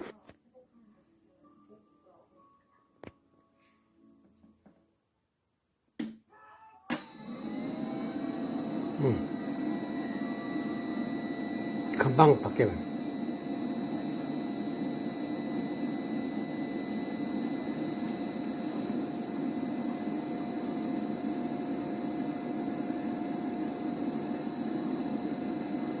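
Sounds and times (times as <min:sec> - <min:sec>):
motor-driven machine humming: 0:07.1 - 0:26.0.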